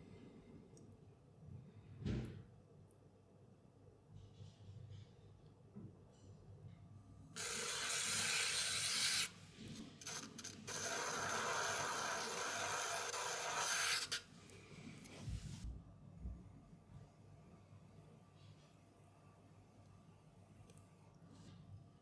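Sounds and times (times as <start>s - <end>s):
scraping on clay: 7.4s - 14.3s.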